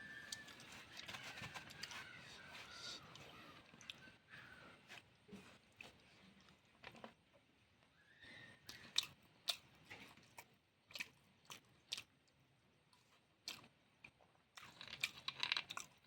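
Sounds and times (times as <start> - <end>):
chewing and biting: 8.7 - 12.4, 13.0 - 16.0.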